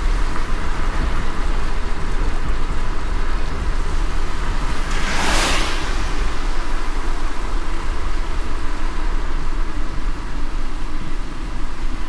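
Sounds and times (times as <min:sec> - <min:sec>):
car road rumble: 0:00.0 - 0:12.0
rain hiss: 0:00.0 - 0:12.0
hissing whoosh: 0:04.1 - 0:08.6.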